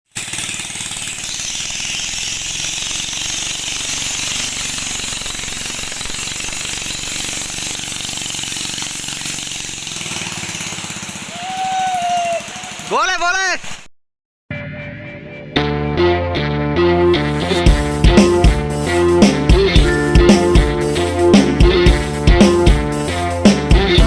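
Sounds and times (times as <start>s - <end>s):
engine chugging: 0.1s - 13.1s, 17.4s - 24.0s
short steady tone: 19.8s - 20.9s.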